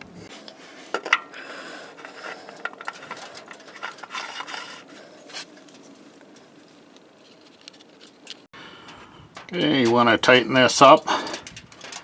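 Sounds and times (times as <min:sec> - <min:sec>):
rubbing scrapes: 0:00.3 - 0:08.5.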